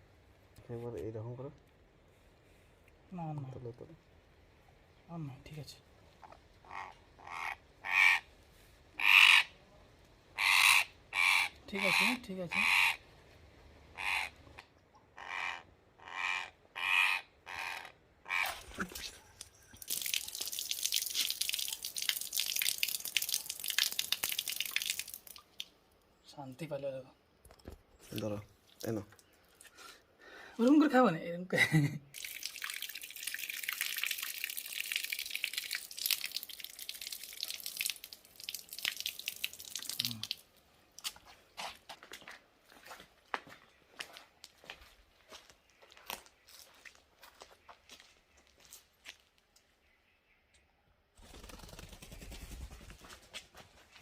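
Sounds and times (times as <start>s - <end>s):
parrot squawking harshly: 6.6s - 8.2s, 9.0s - 9.5s, 10.4s - 13.0s, 13.9s - 14.4s, 15.2s - 18.7s
water trickling and dripping: 18.7s - 26.1s, 27.5s - 29.7s, 32.1s - 41.3s.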